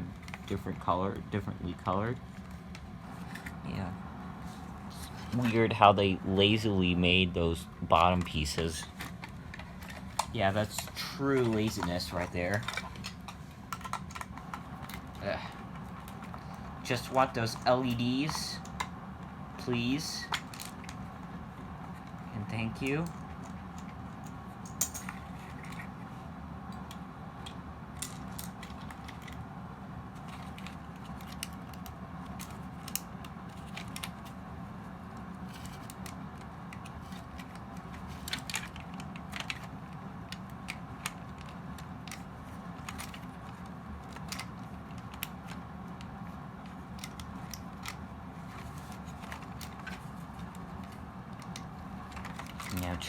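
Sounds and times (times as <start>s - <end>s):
steady low hum: 0.0s - 53.0s
plastic parts clicking and tapping: 8.0s - 15.2s, 30.2s - 34.4s, 35.5s - 53.0s.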